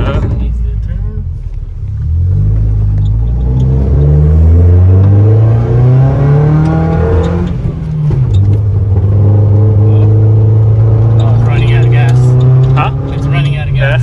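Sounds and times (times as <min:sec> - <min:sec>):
engine accelerating: 0:00.0 - 0:14.0.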